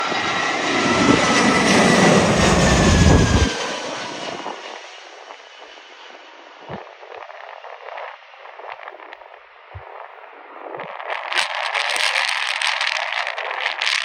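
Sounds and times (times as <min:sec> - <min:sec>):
deep jet rumble: 0:00.0 - 0:14.0
jet engines rushing and whining: 0:00.0 - 0:14.0.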